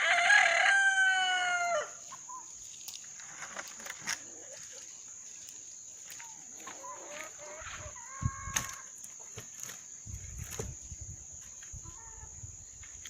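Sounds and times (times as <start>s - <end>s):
rooster crowing: 0.0s - 2.0s.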